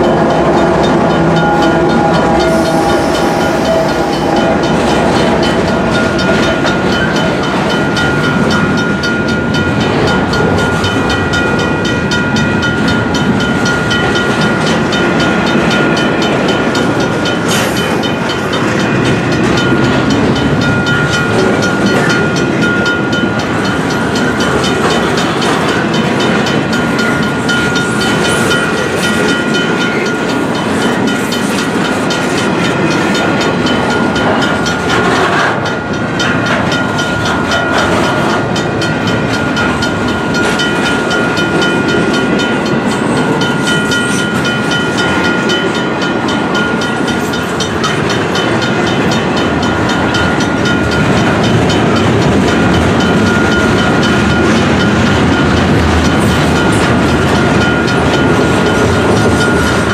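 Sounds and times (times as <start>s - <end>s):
high-pitched wheel squeal: 0.0s - 6.6s
freight train wheels rumbling: 0.0s - 59.9s.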